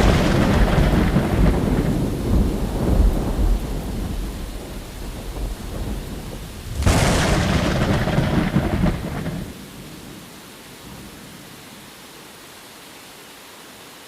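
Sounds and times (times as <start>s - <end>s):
sharp thunderclap: 0.0s - 9.6s
thunder rumbling: 0.0s - 9.6s
rain: 0.0s - 14.0s.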